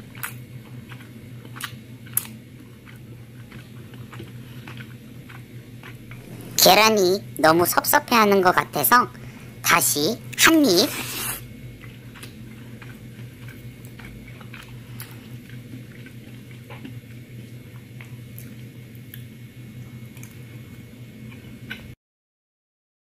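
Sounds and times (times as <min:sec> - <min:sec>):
person chewing: 0:00.1 - 0:06.6, 0:10.3 - 0:19.3
low hum: 0:06.0 - 0:11.8.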